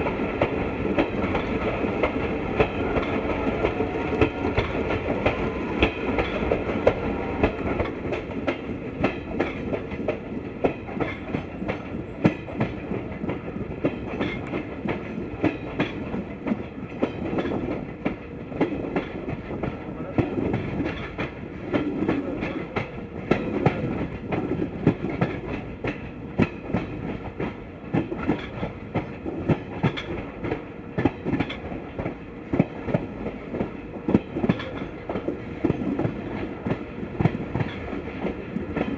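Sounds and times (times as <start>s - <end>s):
train coach rumbling: 0.0s - 38.9s.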